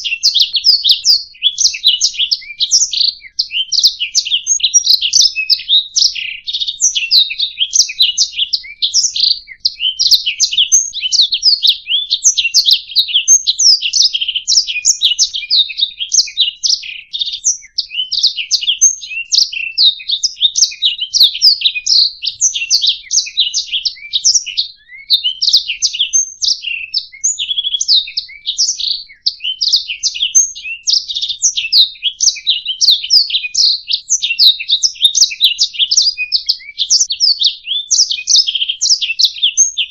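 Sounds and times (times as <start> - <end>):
canary singing chirps and trills: 0.0 - 39.9.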